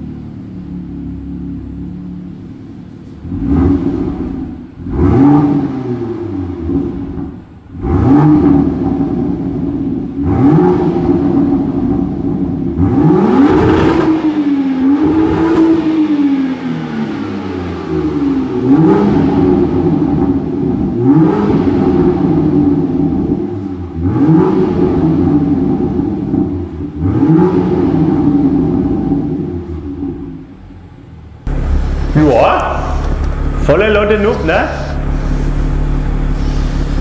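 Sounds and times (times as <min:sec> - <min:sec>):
car engine idling: 0:00.0 - 0:37.0
engine revving: 0:03.2 - 0:30.3, 0:31.4 - 0:37.0.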